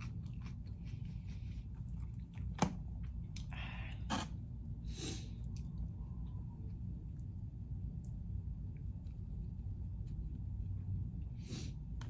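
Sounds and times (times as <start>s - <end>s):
chewing: 0.0s - 3.5s
steady low hum: 0.0s - 12.0s.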